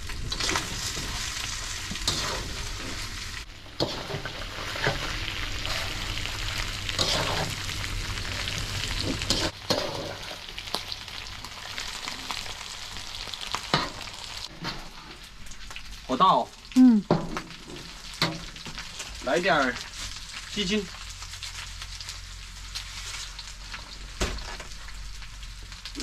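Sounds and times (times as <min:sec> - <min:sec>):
food sizzling in a hot pan: 0:00.0 - 0:26.0
spatula scraping a pan: 0:00.3 - 0:03.2, 0:03.8 - 0:06.0, 0:06.9 - 0:07.7, 0:09.0 - 0:10.5.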